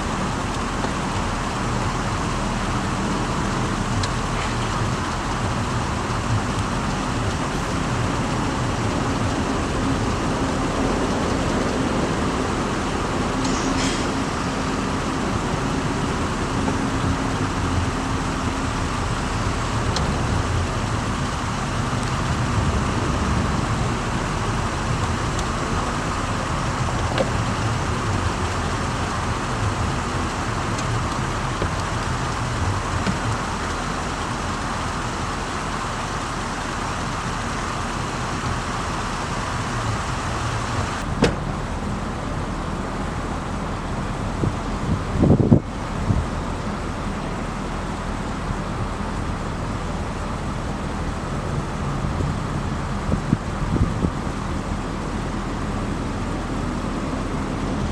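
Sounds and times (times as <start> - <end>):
car engine and road noise: 0.0 - 57.9.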